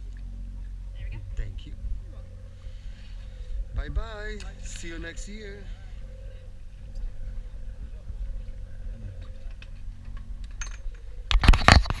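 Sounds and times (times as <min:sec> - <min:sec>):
boat engine rumble: 0:00.0 - 0:12.0
rough noise on microphone: 0:06.8 - 0:12.0.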